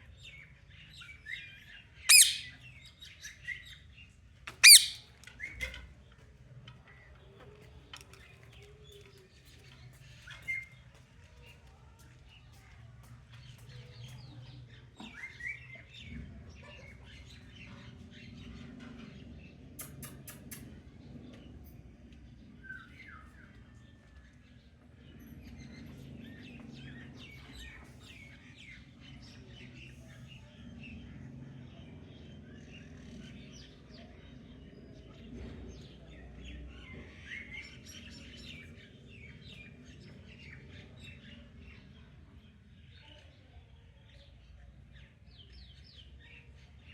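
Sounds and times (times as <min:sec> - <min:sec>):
parrot chirping: 0:02.1 - 0:02.6, 0:04.6 - 0:05.0.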